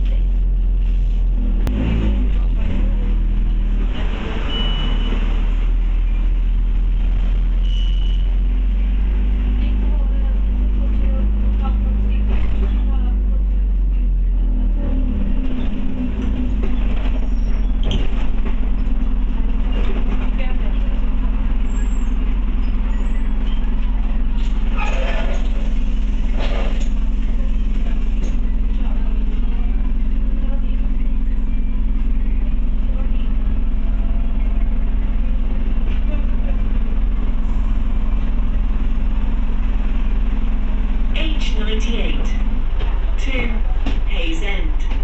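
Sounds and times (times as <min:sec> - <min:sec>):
bus engine drone: 0:00.0 - 0:45.0.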